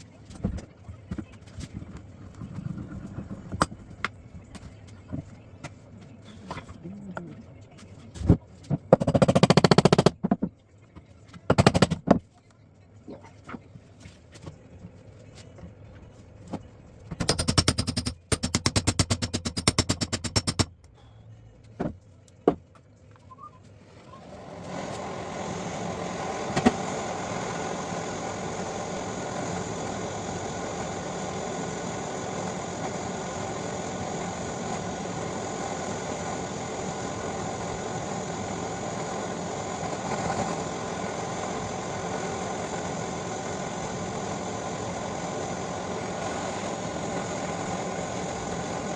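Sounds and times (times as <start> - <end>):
air tool hammering: 8.9 - 10.4, 11.5 - 12.2, 17.2 - 20.8, 24.4 - 48.9
power tool motor running: 24.2 - 48.9.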